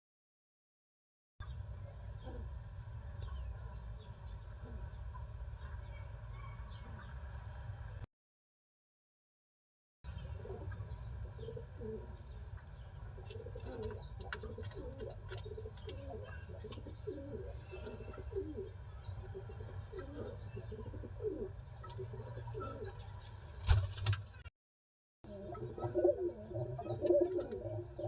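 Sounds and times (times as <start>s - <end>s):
pigeons cooing: 2.2s - 2.6s, 4.4s - 5.0s, 10.2s - 23.1s, 25.3s - 28.0s.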